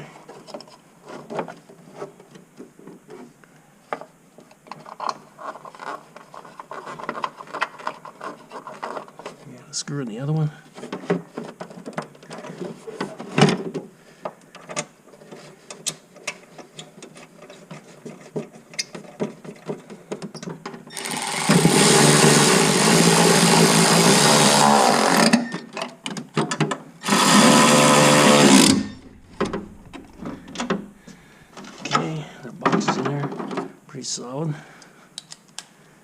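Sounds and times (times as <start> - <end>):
power drill driving a screw: 20.9 - 25.6, 27.0 - 30.2.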